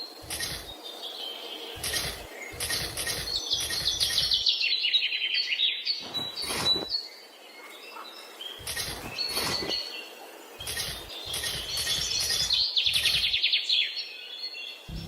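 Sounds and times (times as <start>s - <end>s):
songbird trill: 0.0s - 15.0s
short bird chirps: 1.7s - 4.6s, 8.6s - 10.0s, 10.6s - 13.6s.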